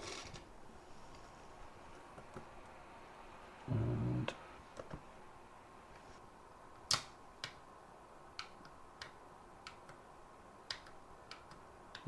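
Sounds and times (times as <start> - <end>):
sharp plastic clicks: 6.8 - 7.6, 8.3 - 10.0, 10.6 - 12.0.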